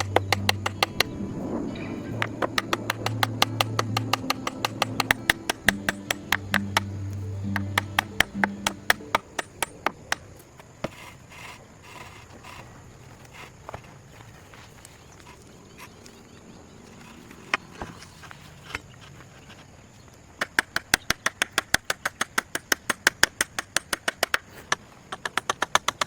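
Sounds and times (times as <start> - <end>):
sharp knocks on wood: 0.0 - 1.2, 2.2 - 10.2.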